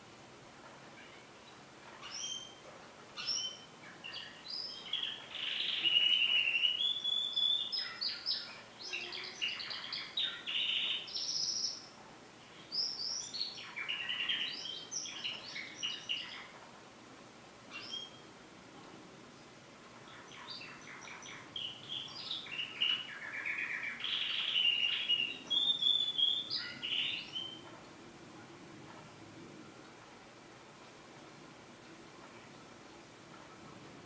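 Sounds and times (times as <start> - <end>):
canary singing trills and chirps: 0.6 - 16.6, 17.6 - 18.4, 19.8 - 27.8.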